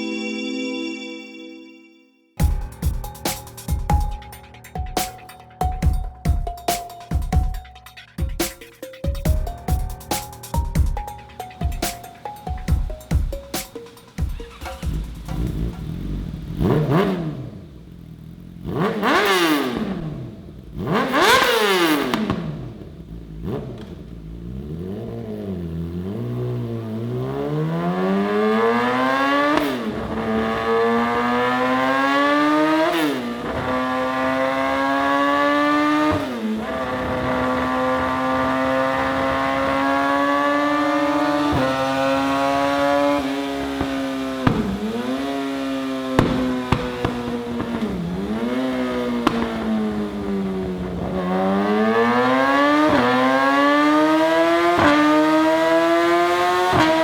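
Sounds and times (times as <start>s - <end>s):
motorcycle engine revving: 14.4s - 57.0s.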